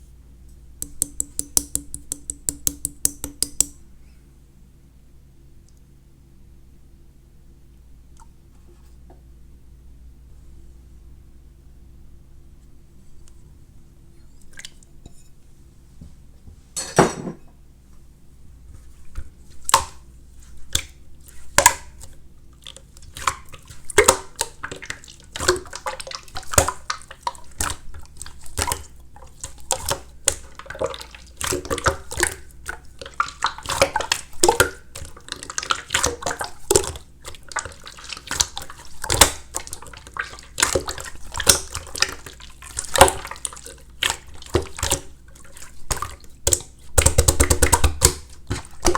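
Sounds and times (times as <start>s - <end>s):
slime squishing with wet clicks: 0.8s - 3.8s, 19.2s - 48.9s.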